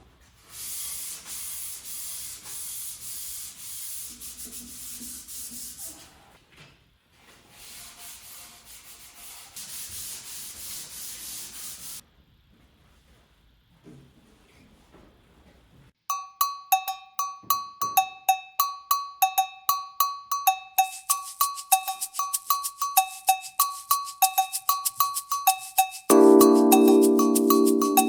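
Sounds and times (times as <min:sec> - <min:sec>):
sandpaper rubbing on wood: 0:00.6 - 0:06.0, 0:07.5 - 0:12.0.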